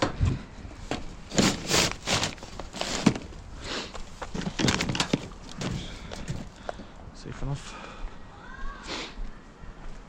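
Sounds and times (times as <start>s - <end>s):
rubbish rustling and knocking: 0.0s - 6.6s.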